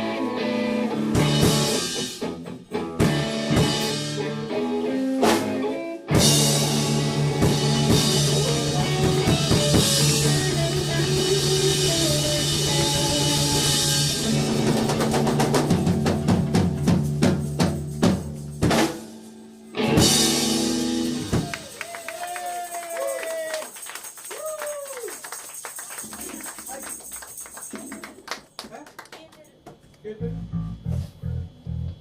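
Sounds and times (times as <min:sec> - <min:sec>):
live band playing: 0:00.0 - 0:22.3
drum hits: 0:06.2 - 0:19.0.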